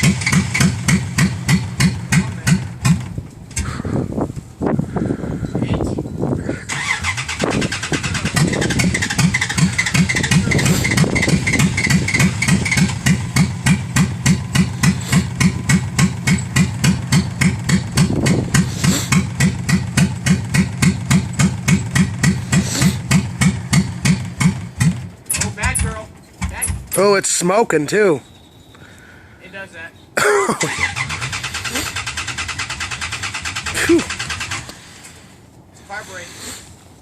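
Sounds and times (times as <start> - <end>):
engine cranking with starter: 0.0 - 3.8, 6.5 - 27.1, 30.6 - 35.2.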